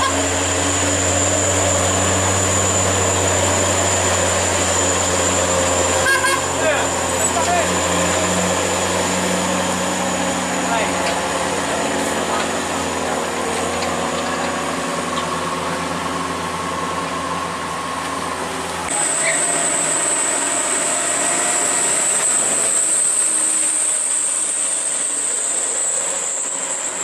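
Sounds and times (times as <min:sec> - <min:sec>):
heavy truck engine running: 0:00.0 - 0:27.0
road noise: 0:00.0 - 0:27.0
high-pitched steady whine: 0:18.8 - 0:27.0.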